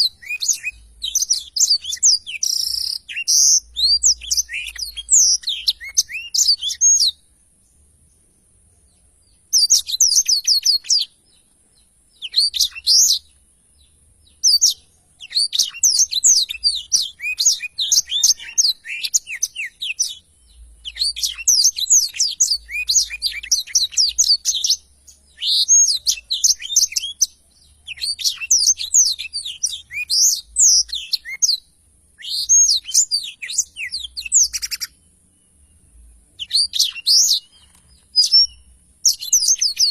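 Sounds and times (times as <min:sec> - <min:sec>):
canary twittering song: 0:00.0 - 0:39.9.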